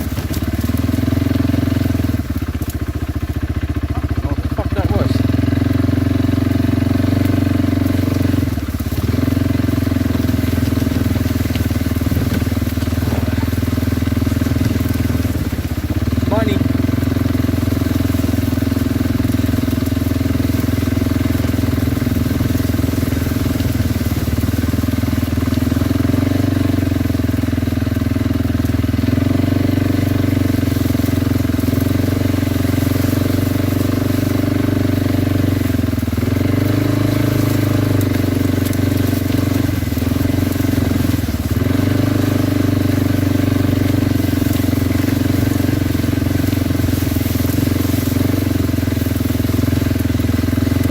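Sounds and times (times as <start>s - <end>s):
atv engine running: 0.0s - 50.9s.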